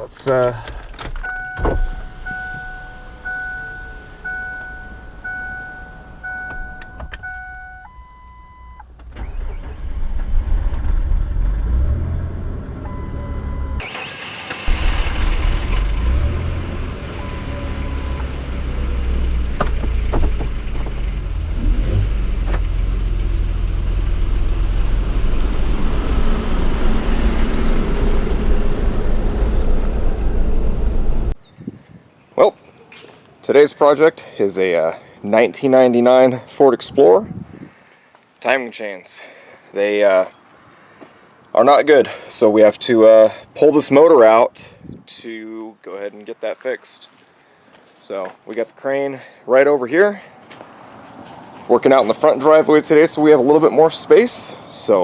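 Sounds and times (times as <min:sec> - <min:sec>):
dashboard warning chime beeping: 0:01.2 - 0:08.8, 0:12.8 - 0:13.9
car engine cranking and running: 0:09.0 - 0:31.3.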